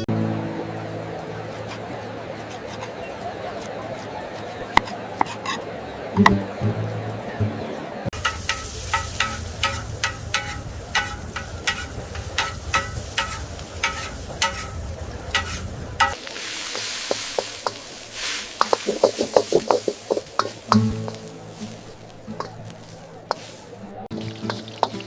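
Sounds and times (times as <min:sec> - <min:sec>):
food sizzling on hot surface: 0:08.1 - 0:25.0
metal utensil clinking on cookware: 0:08.2 - 0:16.2.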